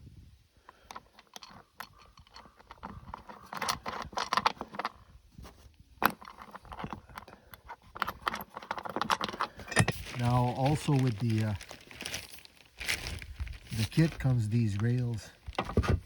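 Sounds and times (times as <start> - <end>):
metal clicks and clinks: 0.7 - 4.9, 6.0 - 10.1.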